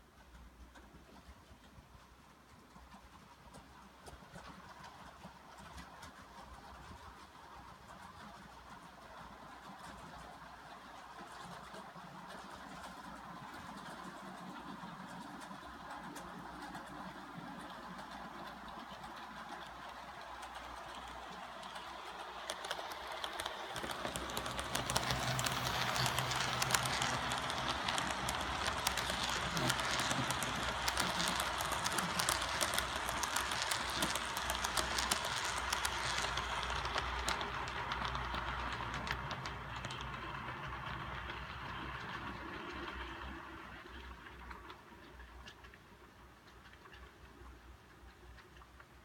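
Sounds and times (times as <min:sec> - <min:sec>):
model train rumbling on track: 0:00.0 - 0:49.0.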